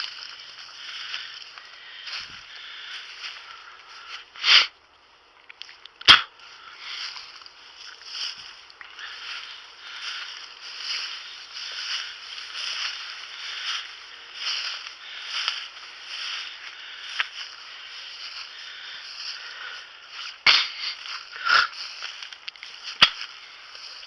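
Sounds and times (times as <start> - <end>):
footsteps brushing through brush: 0.0 - 4.4, 5.6 - 24.0
twigs snapping: 5.4 - 17.6, 20.5 - 24.0.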